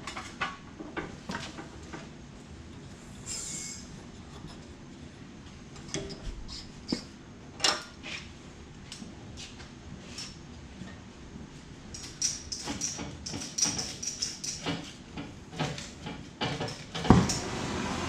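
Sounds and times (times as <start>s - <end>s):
high scraping squeal: 3.2s - 3.9s
metal clinks and knocks: 11.9s - 17.4s.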